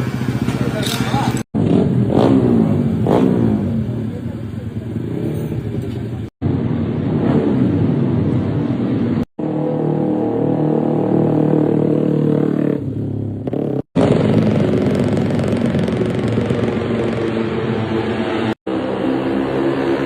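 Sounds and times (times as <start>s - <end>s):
motorcycle engines screaming: 0.0s - 6.2s, 9.4s - 20.0s
motorcycle passing by: 5.0s - 20.0s.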